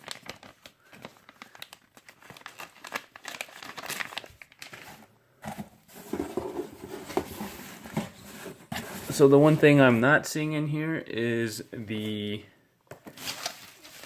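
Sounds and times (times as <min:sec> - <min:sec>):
packaging crinkling and rustling: 0:00.0 - 0:09.8, 0:13.0 - 0:14.0.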